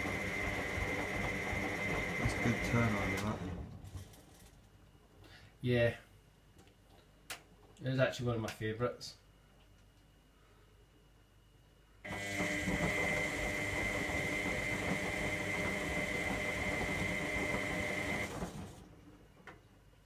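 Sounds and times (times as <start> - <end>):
laundry churning: 0.0 - 3.8, 12.1 - 19.0
washing machine motor whine: 0.0 - 3.9, 12.1 - 19.1.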